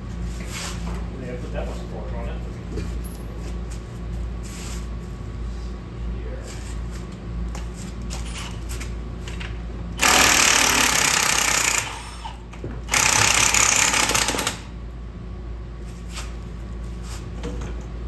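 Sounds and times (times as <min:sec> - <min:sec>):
impact wrench hammering: 0:10.0 - 0:14.7.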